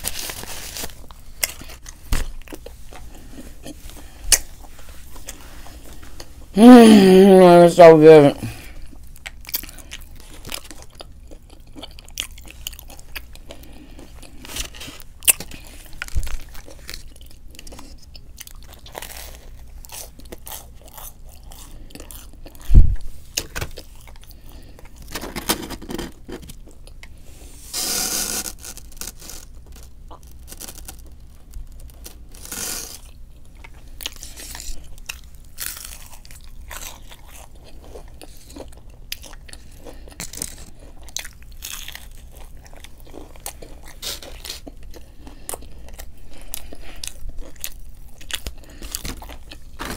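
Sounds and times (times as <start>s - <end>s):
person chewing crunchy food: 0.0s - 49.9s
mouth sounds: 6.5s - 8.6s.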